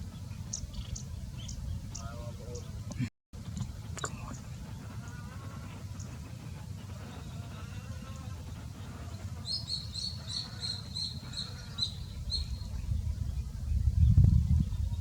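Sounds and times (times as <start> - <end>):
bird chirping: 0.0 - 3.0, 8.0 - 15.0.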